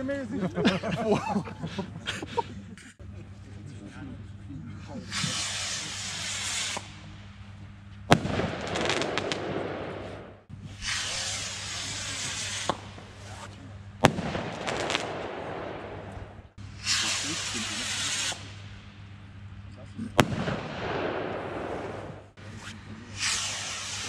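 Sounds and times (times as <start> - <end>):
fireworks hissing: 5.0 - 7.5, 8.1 - 19.4, 20.0 - 24.0
fireworks crackling: 5.0 - 19.4, 20.2 - 24.0
fireworks bangs: 5.1 - 7.1, 8.1 - 19.0, 20.2 - 24.0.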